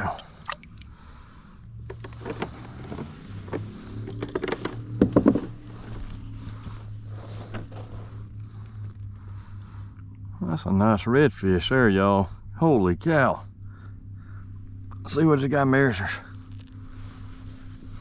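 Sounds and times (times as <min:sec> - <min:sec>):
steady low hum: 0:00.0 - 0:18.0
knocks and thumps in a kayak: 0:01.9 - 0:05.6.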